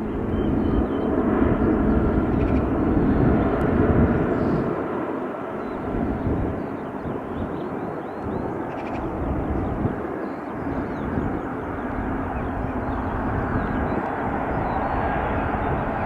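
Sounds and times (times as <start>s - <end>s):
jet airliner engines rushing: 0.0s - 16.0s.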